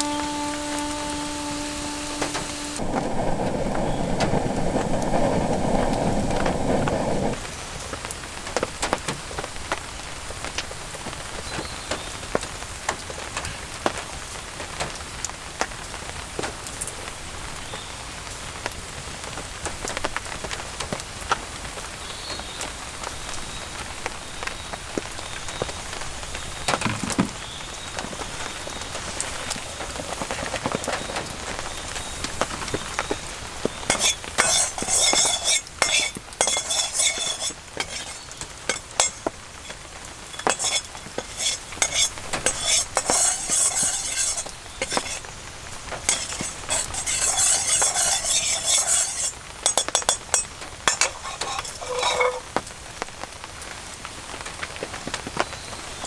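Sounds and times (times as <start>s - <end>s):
metal utensil scraping a wok: 0.0s - 3.0s, 33.8s - 52.6s
food sizzling in a wok: 0.0s - 8.4s, 31.6s - 54.4s.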